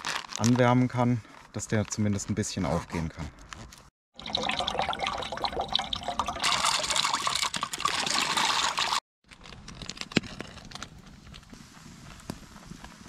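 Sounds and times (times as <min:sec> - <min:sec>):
beans pouring and splashing from can: 0:04.3 - 0:09.0.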